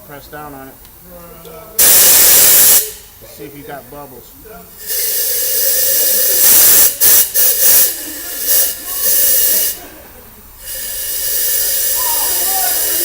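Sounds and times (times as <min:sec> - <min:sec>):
compressed air blow gun hissing: 0:01.8 - 0:03.2, 0:04.7 - 0:13.0.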